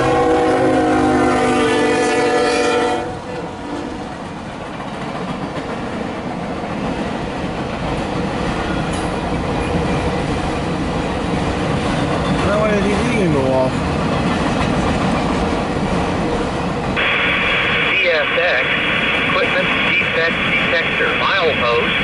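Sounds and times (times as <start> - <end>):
locomotive air horn: 0.0 - 3.9.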